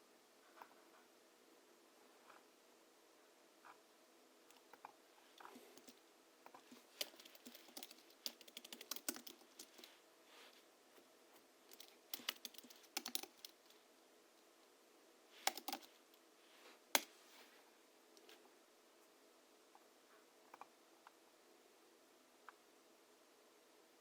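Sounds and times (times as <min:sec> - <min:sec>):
keyboard typing: 0:04.7 - 0:09.9, 0:11.7 - 0:13.8, 0:15.4 - 0:16.0.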